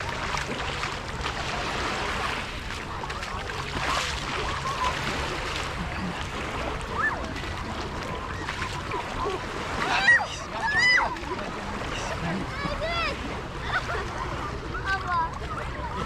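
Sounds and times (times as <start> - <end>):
sea surf washing: 0.0 - 16.0.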